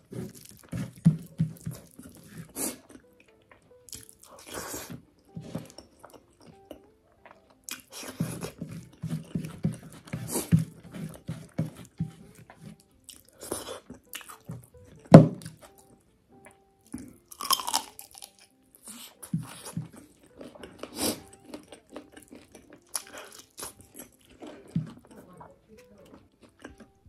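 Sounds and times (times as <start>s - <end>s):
wet chewing: 0.0s - 27.0s
crunchy bites: 17.3s - 18.5s.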